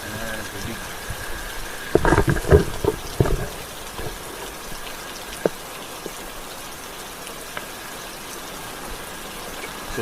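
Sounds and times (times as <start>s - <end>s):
rain hiss: 0.0s - 10.0s
knocks and bumps: 1.9s - 4.8s.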